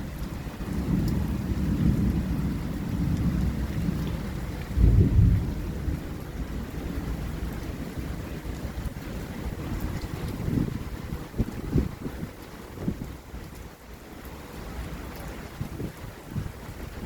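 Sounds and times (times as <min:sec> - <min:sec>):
thunder rumbling: 0:00.0 - 0:13.2.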